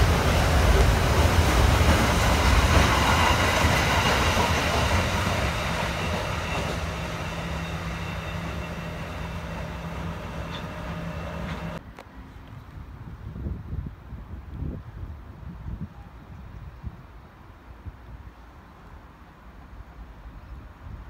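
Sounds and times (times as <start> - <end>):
freight train rolling past: 0.0 - 11.8.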